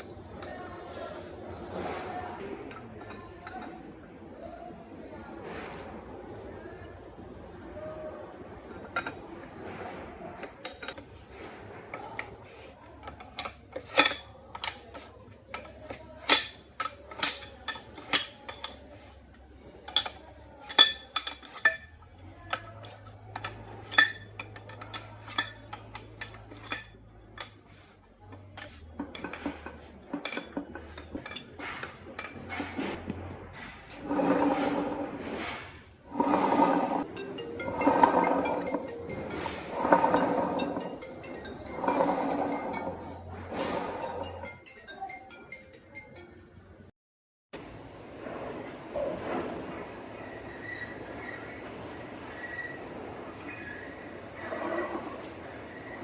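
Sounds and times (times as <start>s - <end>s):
metal tools clinking: 10.4s - 11.2s, 11.9s - 35.0s, 36.1s - 46.7s.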